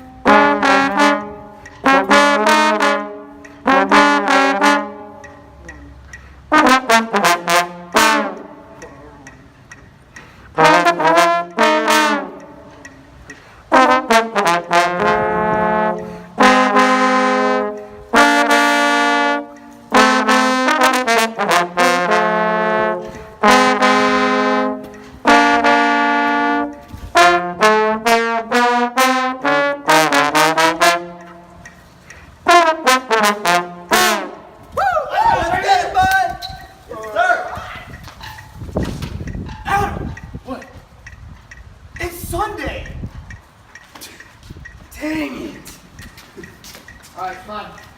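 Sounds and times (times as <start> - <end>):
brass instrument playing: 0.0 - 9.4, 10.3 - 34.8.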